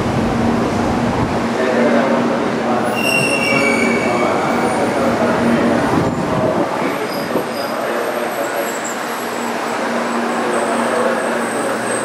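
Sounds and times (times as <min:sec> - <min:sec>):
train rumbling into station: 0:00.0 - 0:12.0
high brake squeal: 0:02.9 - 0:04.9, 0:07.0 - 0:09.5.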